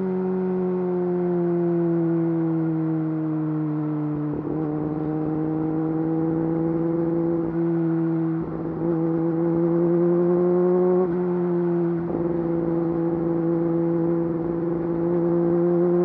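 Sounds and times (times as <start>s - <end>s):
motorcycle engine running: 4.2s - 16.0s.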